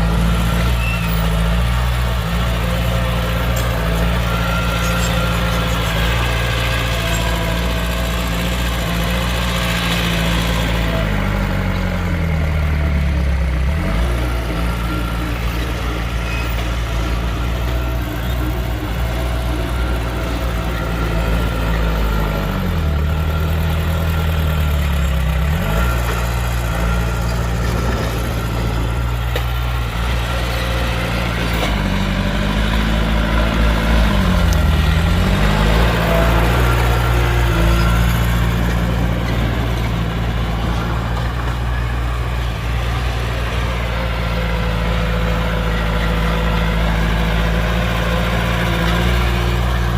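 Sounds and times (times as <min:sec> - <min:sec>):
heavy diesel engines running: 0:00.0 - 0:49.9.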